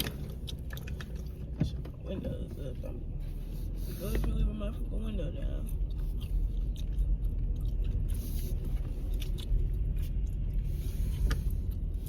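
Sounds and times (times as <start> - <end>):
gum chewing and smacking: 0.0 - 1.6, 5.5 - 12.0
car cabin rumble: 0.0 - 12.0.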